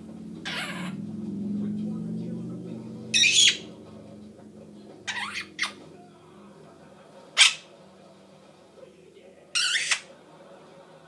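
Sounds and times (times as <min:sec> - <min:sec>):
parrot squawking: 0:00.4 - 0:01.0, 0:03.1 - 0:03.8, 0:05.0 - 0:05.8, 0:07.4 - 0:07.7, 0:09.5 - 0:10.1.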